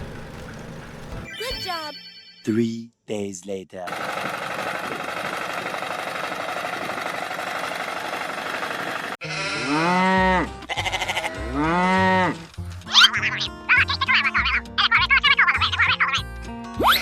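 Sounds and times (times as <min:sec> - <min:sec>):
drawn-out bleats: 0:09.2 - 0:12.4.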